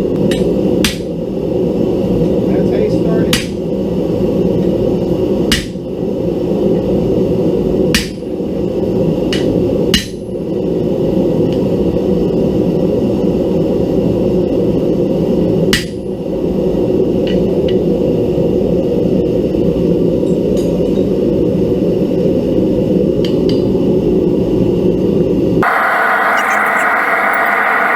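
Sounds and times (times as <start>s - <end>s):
steady low roar: 25.6s - 27.9s.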